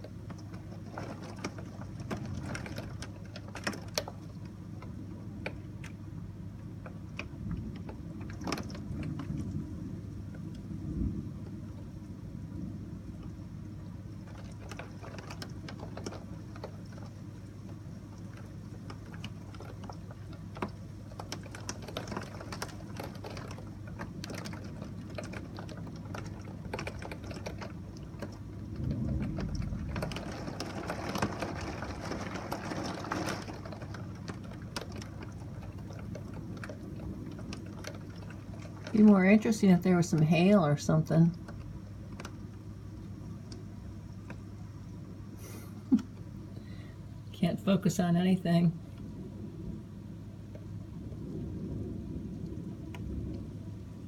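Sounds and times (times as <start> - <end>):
rain pattering on a window: 0.0 - 54.0
steady low hum: 0.0 - 54.0
low rumble: 7.2 - 17.1, 26.3 - 47.9, 48.5 - 54.0.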